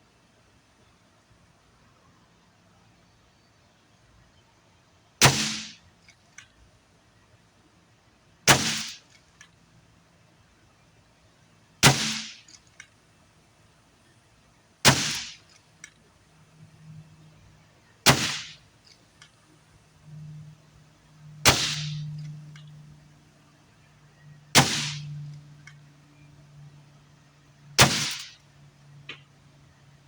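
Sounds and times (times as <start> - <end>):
air rifle shots: 5.2 - 5.8, 8.5 - 9.2, 11.8 - 12.8, 14.8 - 15.6, 18.0 - 18.7, 21.4 - 22.3, 24.5 - 25.4, 27.8 - 28.4.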